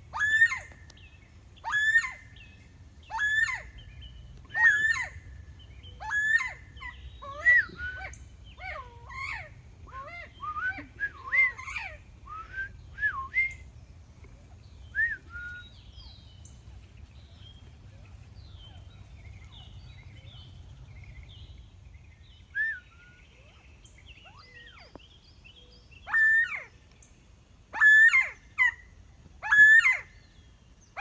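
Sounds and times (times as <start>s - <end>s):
quail whistled calls: 0.1s - 0.8s, 1.6s - 2.4s, 3.1s - 3.9s, 4.5s - 5.2s, 5.9s - 13.6s, 14.9s - 16.2s, 22.5s - 25.0s, 26.0s - 26.7s, 27.7s - 28.8s, 29.4s - 30.2s.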